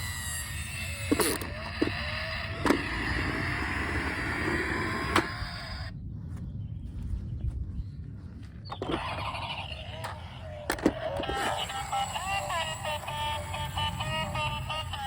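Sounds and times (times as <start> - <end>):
toy car motor whining: 0.0 - 5.9, 8.7 - 15.0
sharp clicks: 0.9 - 5.9.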